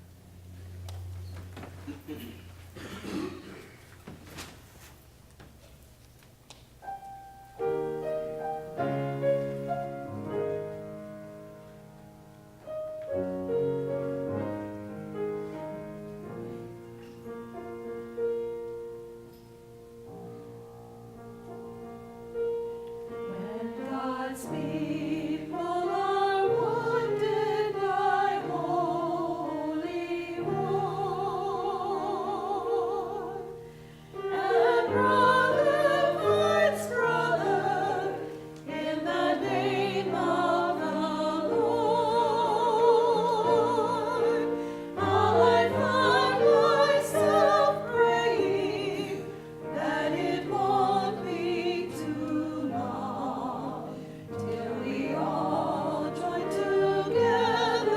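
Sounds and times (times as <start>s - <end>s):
piano accompaniment: 6.8s - 57.9s
church choir singing: 7.6s - 11.6s, 12.7s - 17.3s, 22.4s - 57.9s.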